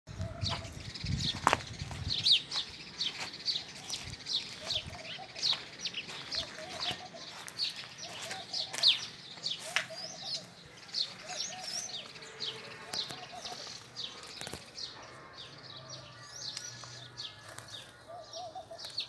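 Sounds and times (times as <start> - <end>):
small birds chirping: 0.1 - 19.0
lower wavering bird call: 9.6 - 12.1.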